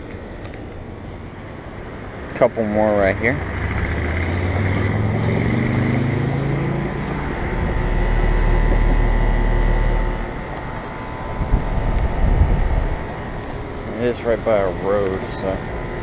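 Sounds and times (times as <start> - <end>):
low rumble of passing traffic: 0.0 - 16.0
vehicle driving by: 2.9 - 13.8.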